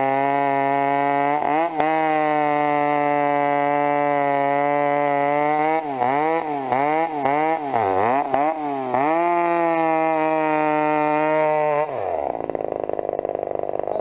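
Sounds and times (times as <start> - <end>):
chainsaw running at full throttle: 0.0 - 14.0.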